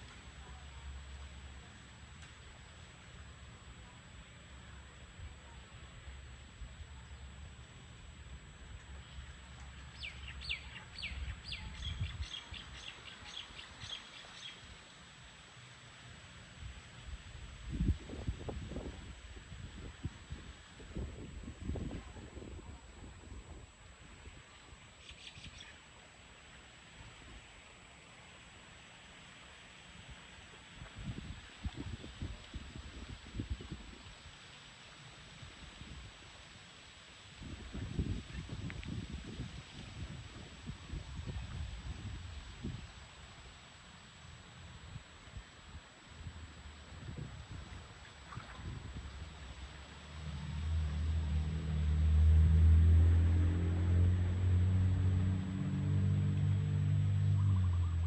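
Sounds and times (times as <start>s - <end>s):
bird singing: 9.8s - 14.6s
wind buffeting microphone: 17.1s - 24.4s, 30.8s - 34.2s, 37.4s - 43.0s, 46.2s - 58.0s.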